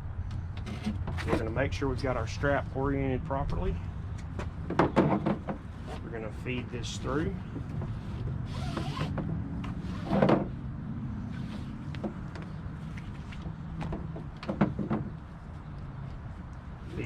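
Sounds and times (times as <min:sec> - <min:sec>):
strap rustling and sliding: 0:07.8 - 0:10.3.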